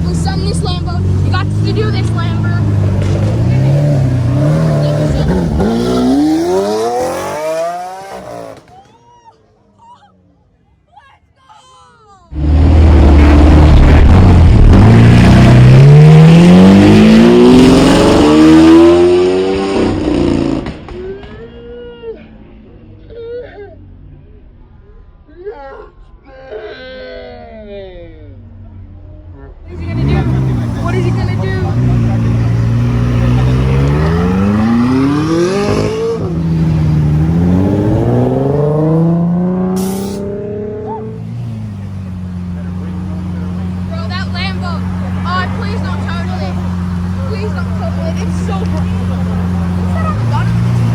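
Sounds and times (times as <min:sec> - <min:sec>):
car engine accelerating: 0:00.0 - 0:08.9, 0:12.3 - 0:21.2, 0:29.6 - 0:50.9.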